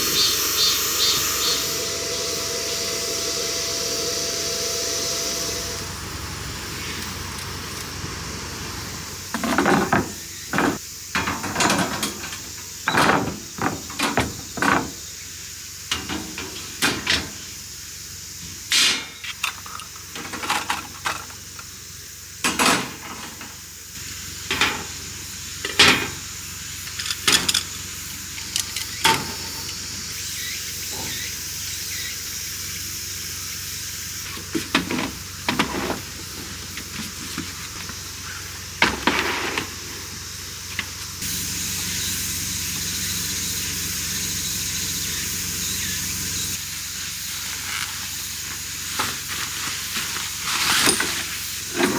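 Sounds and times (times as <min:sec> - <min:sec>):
rain hissing: 0:00.0 - 0:51.9
gear and cookware clattering: 0:09.3 - 0:15.2, 0:15.8 - 0:17.6, 0:18.6 - 0:21.7, 0:22.4 - 0:23.7, 0:24.3 - 0:30.1.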